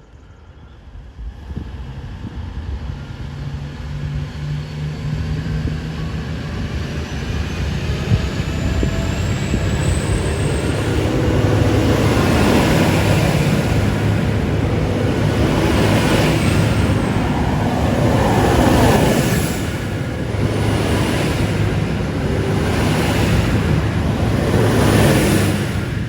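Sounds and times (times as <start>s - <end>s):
high whine from train: 0.0s - 26.0s
diesel train engine humming: 4.9s - 26.0s
train wheel noise: 6.3s - 26.0s.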